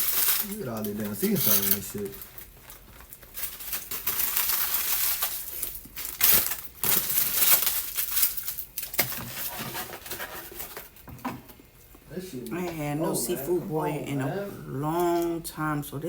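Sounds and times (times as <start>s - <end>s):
food packaging crinkling: 0.0s - 11.1s.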